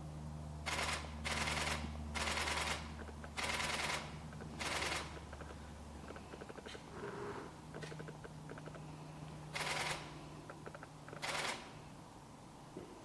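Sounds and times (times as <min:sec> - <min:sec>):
steady low hum: 0:00.0 - 0:13.0
camera shutter bursts: 0:00.6 - 0:05.2, 0:09.5 - 0:10.2, 0:11.1 - 0:11.8.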